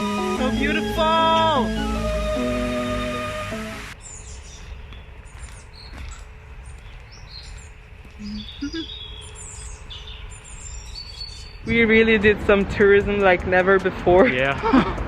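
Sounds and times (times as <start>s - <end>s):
background music: 0.0s - 4.0s
songbirds chirping and singing: 0.0s - 11.8s
low outdoor background rumble: 0.0s - 14.1s.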